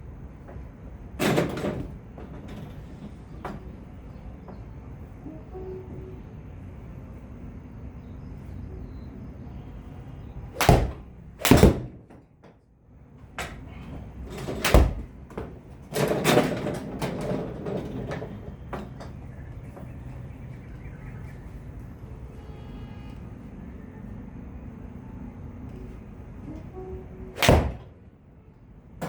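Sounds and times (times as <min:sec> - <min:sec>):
sharp knocks and thuds: 0:10.6 - 0:12.2.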